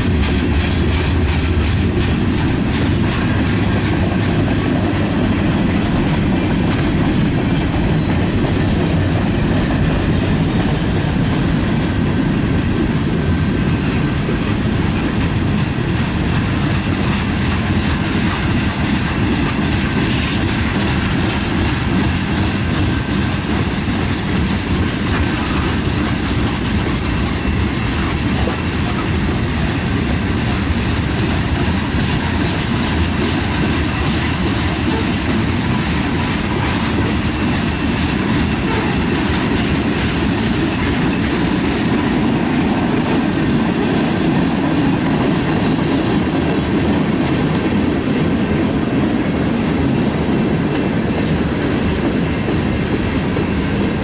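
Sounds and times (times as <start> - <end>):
clickety-clack over rail joints: 0.0 - 54.0
train wheels rumbling on rails: 0.0 - 54.0.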